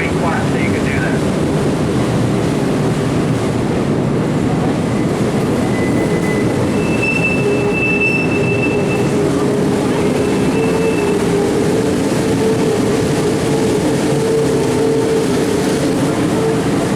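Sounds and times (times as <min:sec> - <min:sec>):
train running on rails: 0:00.0 - 0:16.9
high wheel squeal: 0:05.5 - 0:11.6.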